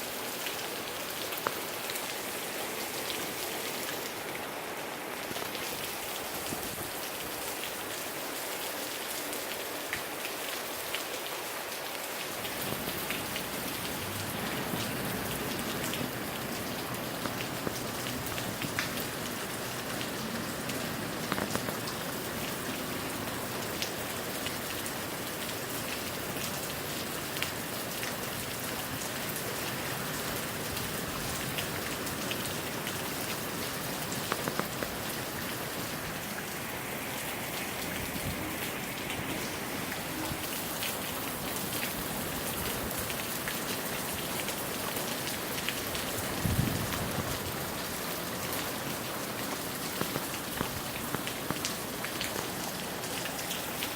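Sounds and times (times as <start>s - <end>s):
steady rain: 0.0s - 53.9s
raindrop ticks: 1.3s - 2.0s, 12.4s - 22.7s, 31.4s - 35.6s, 45.6s - 53.9s
wind rumble: 46.3s - 47.4s.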